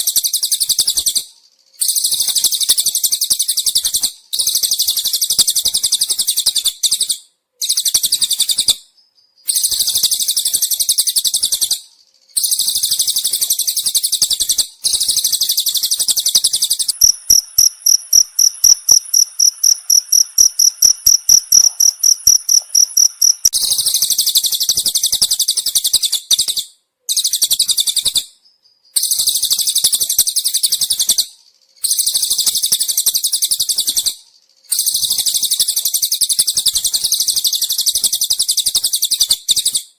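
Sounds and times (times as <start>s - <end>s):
field cricket chirping: 0.0s - 26.4s, 27.1s - 39.8s
buzzy bird trilling: 12.5s - 24.0s.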